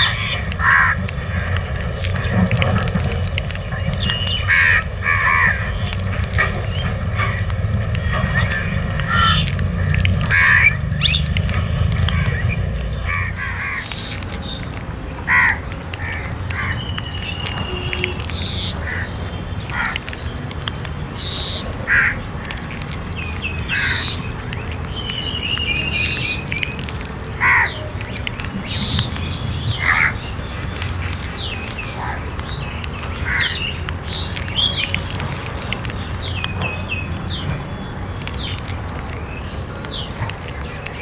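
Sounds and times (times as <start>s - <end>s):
crows cawing: 0.0s - 2.6s, 3.2s - 14.2s, 15.2s - 20.2s, 21.2s - 22.3s, 23.7s - 24.2s, 27.4s - 28.1s, 28.7s - 30.3s, 31.4s - 32.3s, 33.2s - 33.7s
thin chirping calls: 0.0s - 41.0s.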